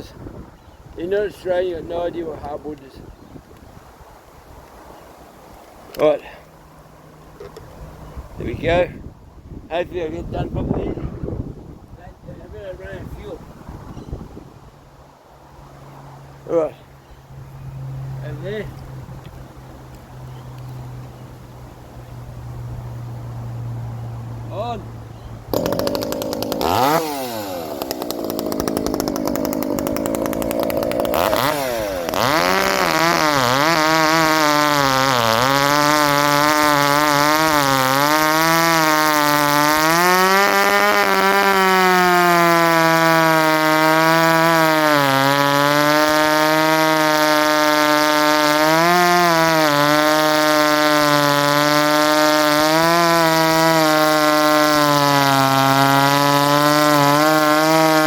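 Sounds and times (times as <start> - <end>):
chainsaw cutting log: 25.5 - 58.0.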